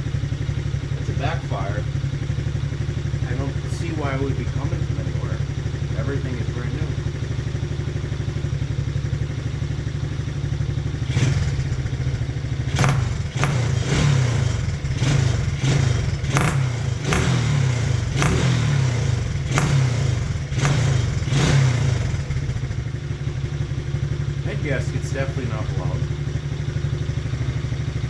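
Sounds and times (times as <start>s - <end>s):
atv engine running: 0.0s - 28.0s
sharp backfire pops: 12.8s - 22.2s.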